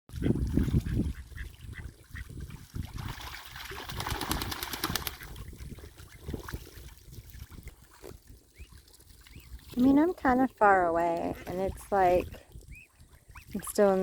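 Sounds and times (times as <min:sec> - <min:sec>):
water splashing: 0:00.1 - 0:14.0
ducks quacking: 0:10.7 - 0:13.7.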